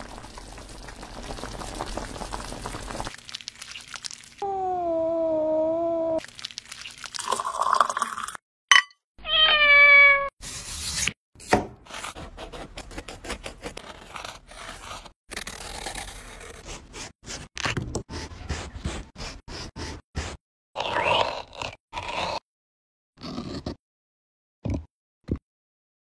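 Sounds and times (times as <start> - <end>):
cat meowing: 4.4 - 6.2, 9.2 - 10.3
knife carving melon: 10.5 - 17.5, 18.1 - 22.4.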